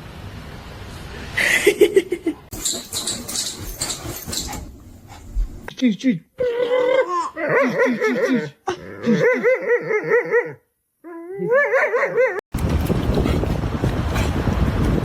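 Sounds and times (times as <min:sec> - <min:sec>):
dog yipping and whining: 0:02.6 - 0:04.8
wind noise: 0:12.5 - 0:15.0.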